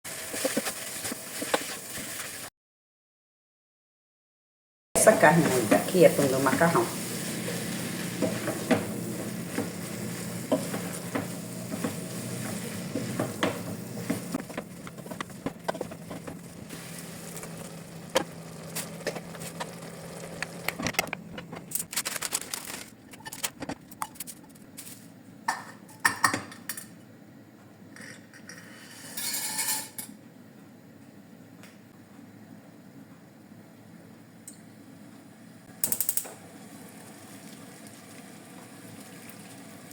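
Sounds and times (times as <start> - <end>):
meat sizzling in a pan: 5.9 - 14.4, 16.5 - 20.7
clinks of pots and utensils: 25.5 - 26.9, 28.0 - 30.1.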